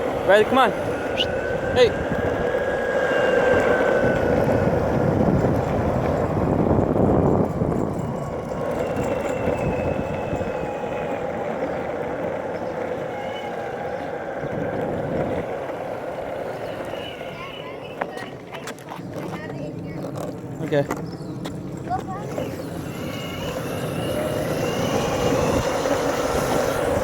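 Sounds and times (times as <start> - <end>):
vehicle motor running: 0.0 - 27.0
faint motor whine: 21.0 - 27.0.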